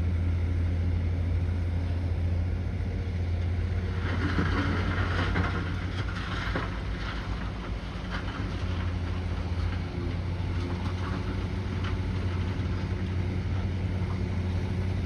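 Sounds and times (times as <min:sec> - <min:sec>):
bulldozer diesel engine droning: 0:00.0 - 0:15.0
scraping and clanking: 0:03.9 - 0:13.2.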